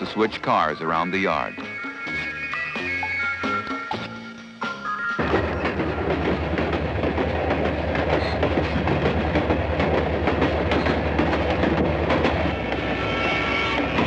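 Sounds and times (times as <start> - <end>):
music: 0.0 - 14.0
train engine drone: 0.0 - 14.0
train wheels clattering on rails: 5.2 - 14.0.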